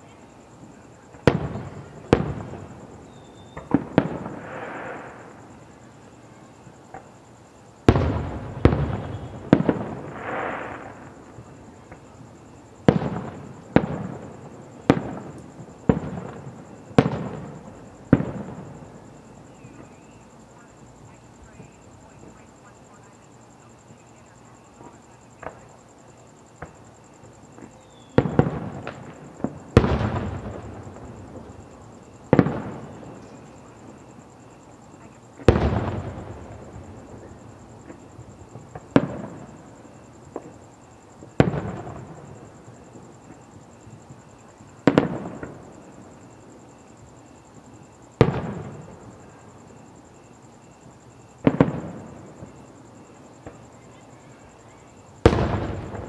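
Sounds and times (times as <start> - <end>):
small firework pops: 1.1 - 2.6, 3.3 - 5.4, 6.9 - 7.1, 11.8 - 12.1, 14.8 - 18.7, 24.8 - 25.7, 26.6 - 26.9, 27.5 - 33.4, 37.8 - 39.6, 40.3 - 40.6, 41.2 - 43.4, 44.8 - 45.8, 48.2 - 49.3, 51.4 - 52.6, 53.4 - 53.9, 54.7 - 56.0
firework shells booming: 1.1 - 5.6, 7.8 - 12.1, 12.8 - 20.1, 27.5 - 34.2, 35.0 - 40.6, 41.2 - 43.4, 44.8 - 45.9, 48.1 - 49.4, 51.4 - 52.7, 55.2 - 56.0.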